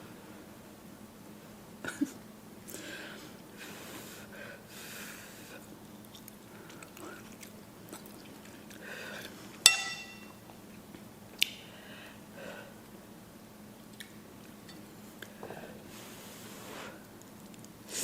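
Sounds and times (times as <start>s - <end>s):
chewing and slurping noodles: 5.6s - 9.6s
utensil clinking against dish: 9.7s - 10.4s.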